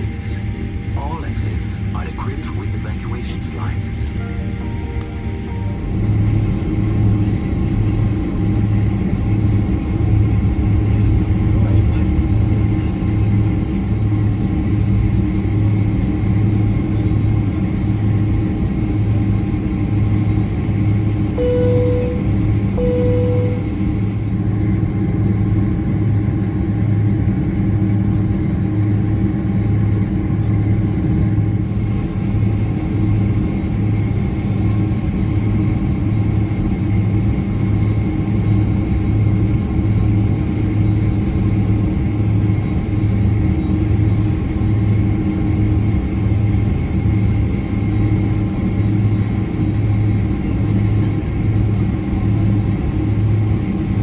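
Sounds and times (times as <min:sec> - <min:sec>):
low pulsing hum: 0:00.0 - 0:26.9
jet engines and airflow drone: 0:00.0 - 0:54.0.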